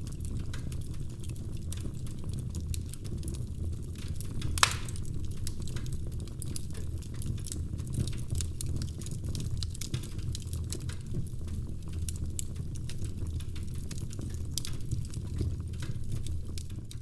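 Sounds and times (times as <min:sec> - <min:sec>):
wood fire crackling: 0:00.0 - 0:17.0
loud pop of burning wood: 0:04.5 - 0:05.1.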